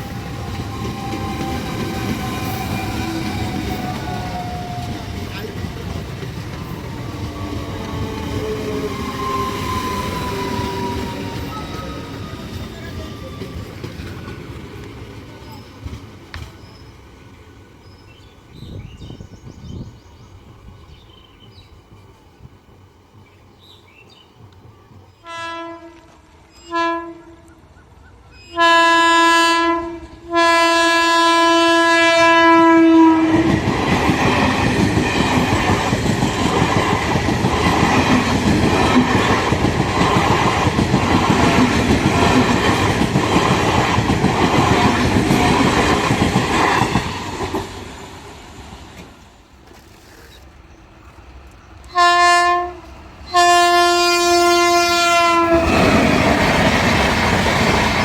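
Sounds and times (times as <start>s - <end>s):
train horn: 0.0s - 5.6s, 25.2s - 27.6s, 28.5s - 33.6s, 51.9s - 56.1s
train wheels clattering: 0.0s - 17.2s, 33.4s - 48.0s, 55.5s - 58.0s.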